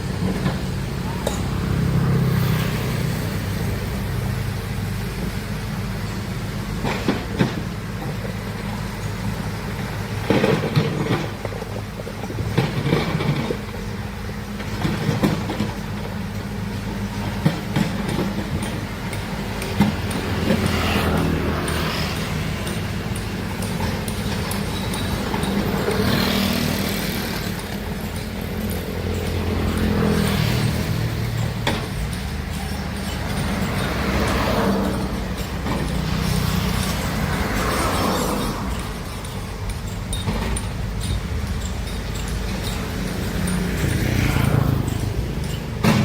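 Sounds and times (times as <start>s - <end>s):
excavator diesel engine running: 0.0s - 46.0s
metallic clanks and knocks: 17.2s - 46.0s.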